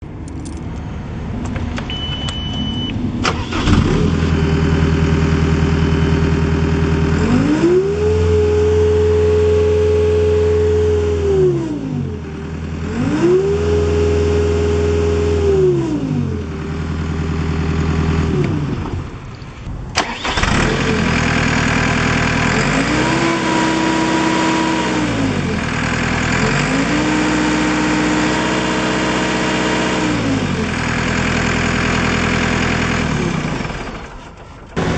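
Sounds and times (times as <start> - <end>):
diesel engine starting and revving: 0.0 - 34.9
short beep: 1.9 - 3.0.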